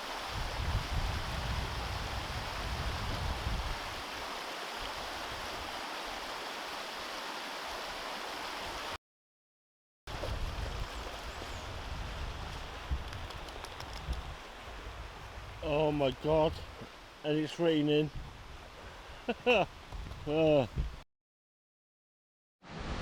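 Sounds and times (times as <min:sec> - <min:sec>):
rain hissing: 0:00.0 - 0:09.0
wind buffeting microphone: 0:00.4 - 0:03.8, 0:10.1 - 0:15.6.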